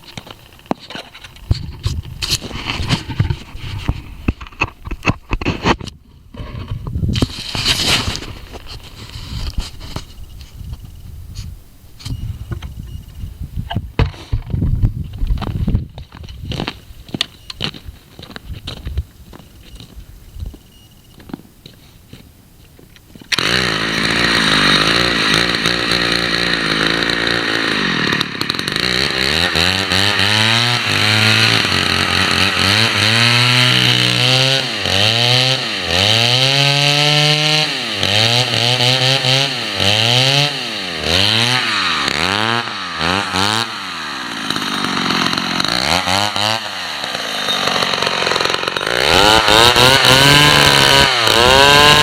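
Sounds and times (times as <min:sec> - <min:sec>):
chainsaw engine revving: 0:23.3 - 0:52.0.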